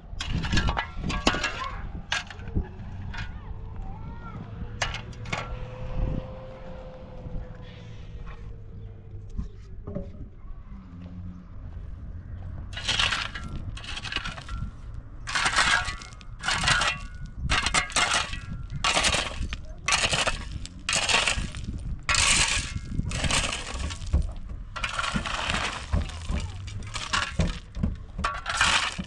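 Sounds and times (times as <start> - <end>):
tool scraping gritty material: 0.2 - 3.4, 12.8 - 29.0.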